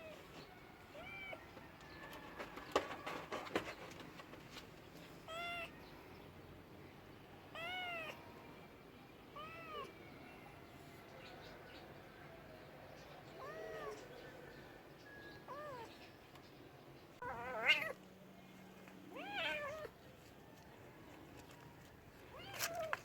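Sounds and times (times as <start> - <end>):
cat meowing: 5.3 - 5.8, 7.5 - 8.2, 9.4 - 9.9, 13.4 - 14.0, 15.5 - 15.9, 17.2 - 18.0, 19.1 - 19.9.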